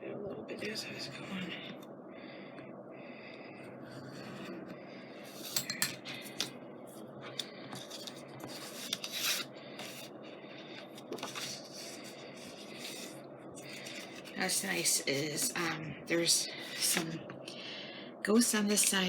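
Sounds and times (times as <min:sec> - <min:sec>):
paper rubbing and rustling: 0:07.4 - 0:15.0.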